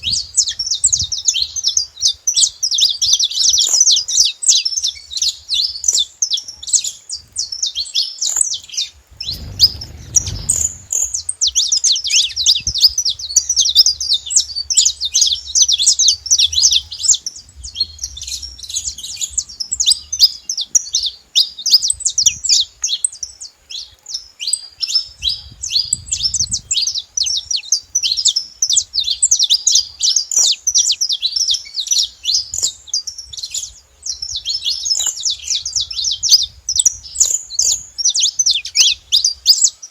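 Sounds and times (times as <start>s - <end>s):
finches chirping: 0.0s - 39.9s
brief low rumble: 9.1s - 11.3s.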